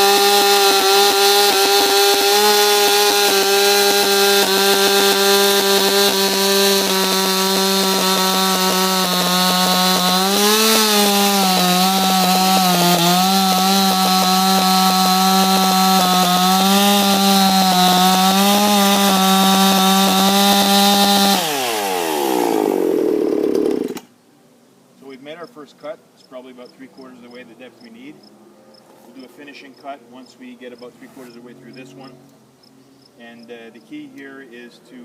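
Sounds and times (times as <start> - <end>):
chainsaw cutting log: 0.0 - 24.1.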